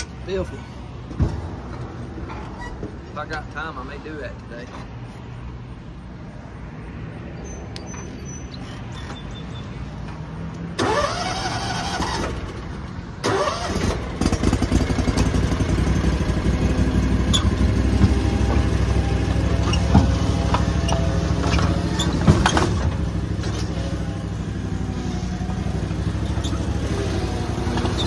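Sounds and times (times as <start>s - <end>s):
mower engine revving: 10.8s - 28.0s.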